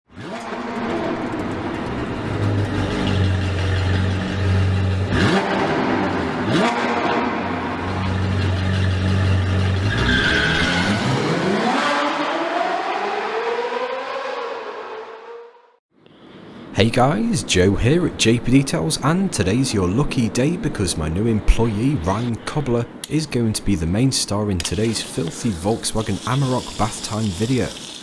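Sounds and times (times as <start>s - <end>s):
vehicle engine revving: 0.1s - 15.7s.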